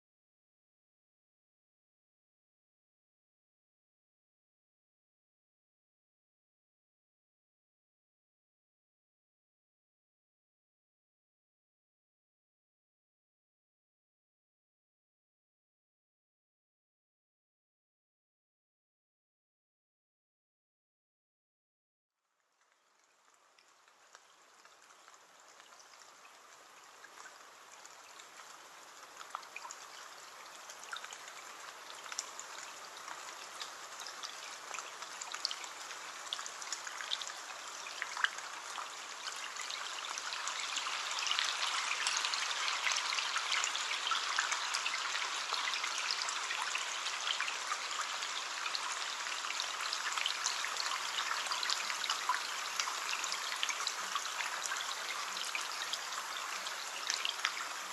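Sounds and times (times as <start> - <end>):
rain on a window pane: 22.2 - 57.9
raindrops ticking: 22.4 - 46.7.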